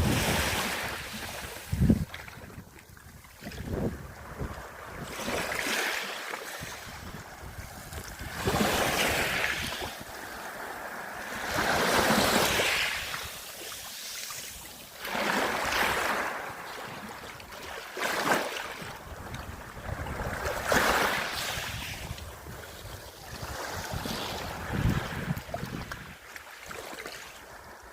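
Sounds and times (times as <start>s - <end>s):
wind buffeting microphone: 0.0s - 5.4s, 6.6s - 10.3s, 19.0s - 26.2s
small waves breaking on shore: 0.0s - 27.9s.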